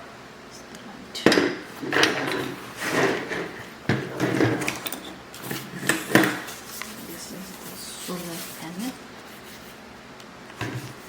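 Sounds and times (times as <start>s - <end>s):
objects knocking and scraping: 1.3s - 7.1s, 10.6s - 11.0s.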